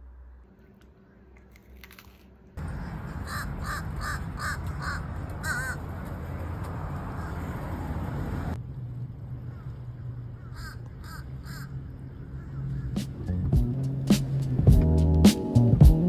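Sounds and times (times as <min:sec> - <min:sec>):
bird calling: 0:02.6 - 0:08.0, 0:09.5 - 0:13.0.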